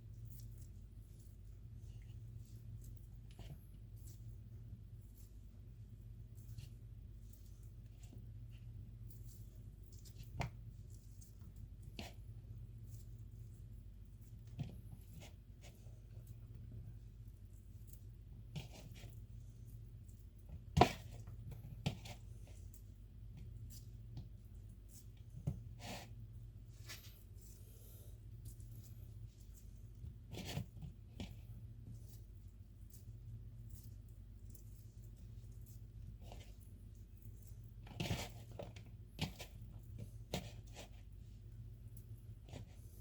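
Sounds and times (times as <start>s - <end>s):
low steady hum: 0.0s - 43.0s
soft scratching of shredding chicken: 0.0s - 43.0s.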